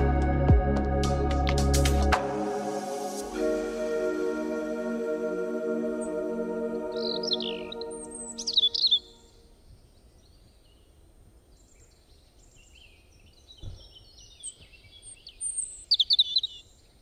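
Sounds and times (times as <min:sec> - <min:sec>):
small birds chirping: 0:06.9 - 0:17.0.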